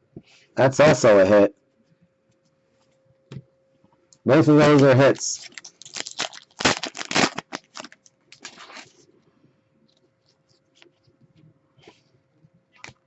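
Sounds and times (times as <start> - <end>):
cards and packaging rustling: 4.6 - 9.1.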